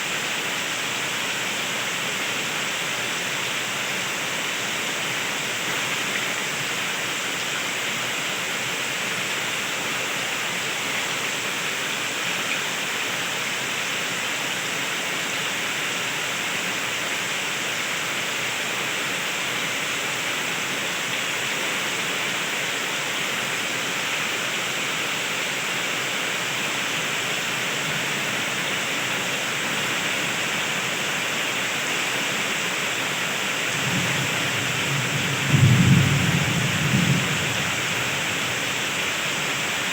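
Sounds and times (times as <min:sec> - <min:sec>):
heavy rain falling: 0:00.1 - 0:39.9
thunder rumble: 0:33.8 - 0:39.9.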